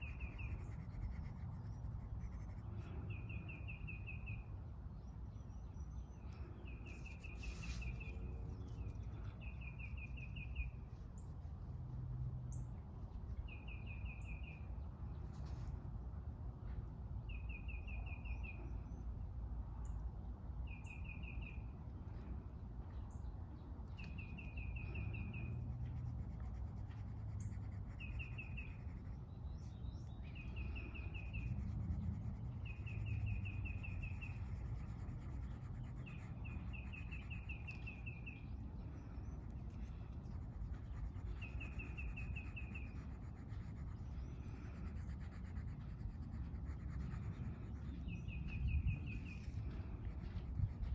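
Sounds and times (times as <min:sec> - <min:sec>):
coloring strokes scratching paper: 0:00.0 - 0:02.7, 0:06.9 - 0:12.2, 0:25.1 - 0:38.2, 0:39.2 - 0:48.4, 0:49.1 - 0:50.9
low outdoor rumble: 0:00.0 - 0:50.9.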